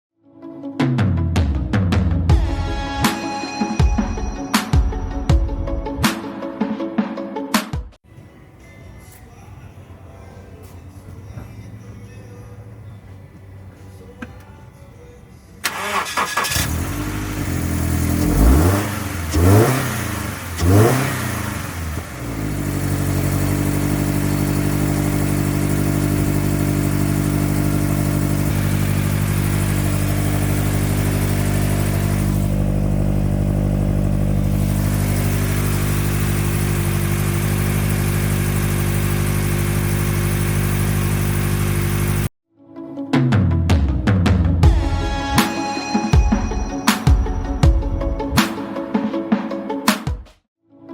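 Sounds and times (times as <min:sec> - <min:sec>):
car engine starting and idling: 0:10.4 - 0:42.3.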